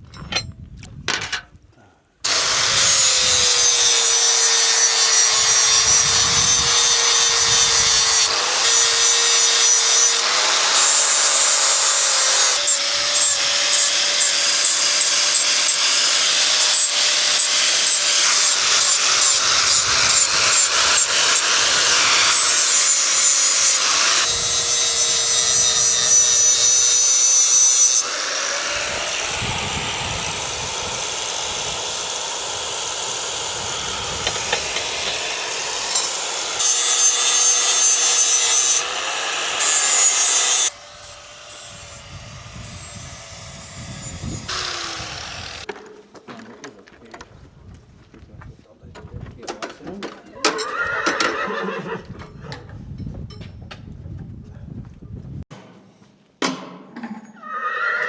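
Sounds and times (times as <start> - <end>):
rasp filing a hoof: 2.3 - 29.4, 34.1 - 45.7.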